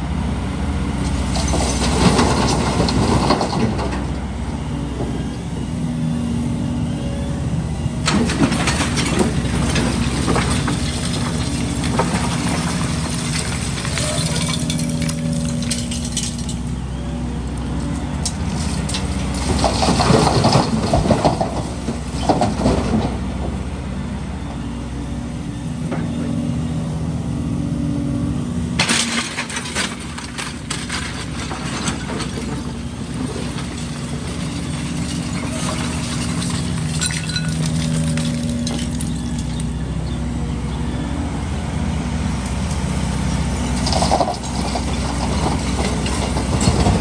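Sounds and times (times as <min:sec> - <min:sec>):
excavator diesel engine running: 0:00.0 - 0:47.0
concrete rubble crashing: 0:08.1 - 0:16.8, 0:18.4 - 0:23.1, 0:28.8 - 0:39.6, 0:43.8 - 0:47.0.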